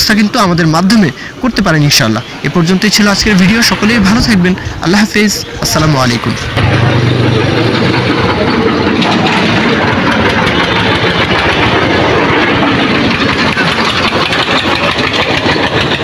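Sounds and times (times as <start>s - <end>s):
tractor diesel engine idling: 3.4s - 16.0s.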